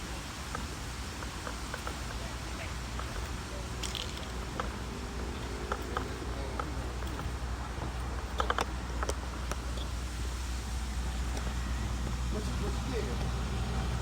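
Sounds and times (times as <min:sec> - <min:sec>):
footsteps on a trail: 0:00.0 - 0:14.0
small ticks: 0:00.0 - 0:14.0
steady low rumble: 0:00.0 - 0:14.0.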